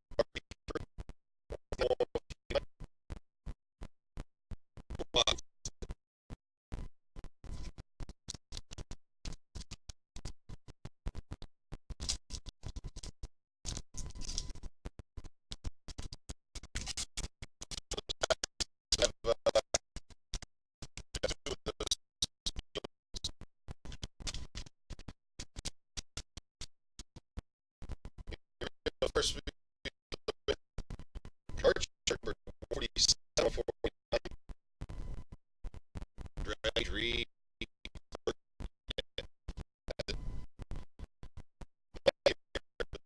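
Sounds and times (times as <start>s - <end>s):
stuttering scratchy audio fragments: 0.2s - 43.0s.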